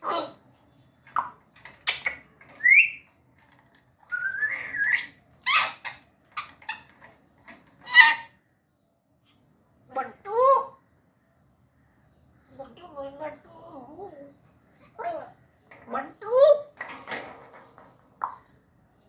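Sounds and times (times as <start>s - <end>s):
parrot whistling and squawking: 4.1s - 6.0s.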